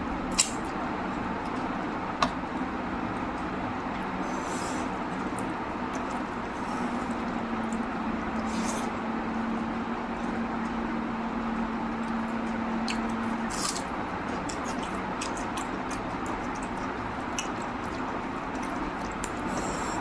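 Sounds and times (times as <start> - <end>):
low steady hum: 0.0 - 20.0
wet chewing and smacking: 4.8 - 20.0.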